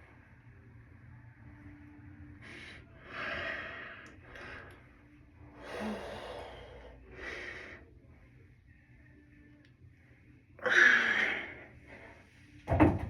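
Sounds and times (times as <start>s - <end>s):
person breathing hard: 2.4s - 8.2s.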